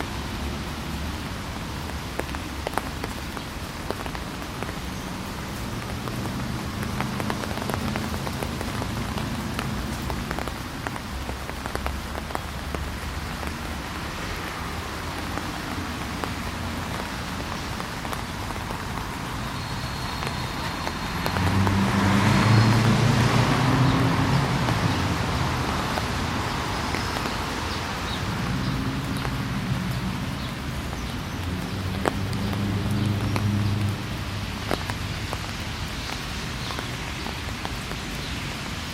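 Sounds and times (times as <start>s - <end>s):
low traffic hum: 0.0s - 38.9s
rain pattering: 0.0s - 38.9s
car passing: 20.8s - 34.7s.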